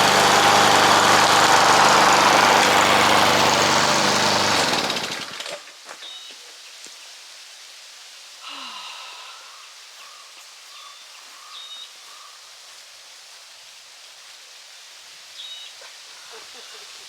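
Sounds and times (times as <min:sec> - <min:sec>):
steady hiss: 0:05.5 - 0:17.0.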